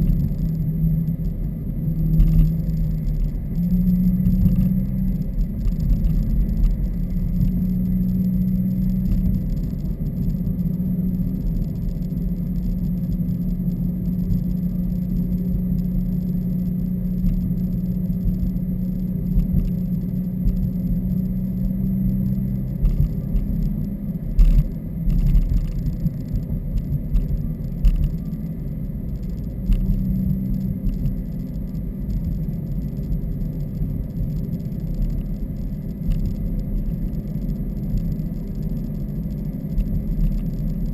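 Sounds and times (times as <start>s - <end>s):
car exhaust droning: 0.0s - 40.9s.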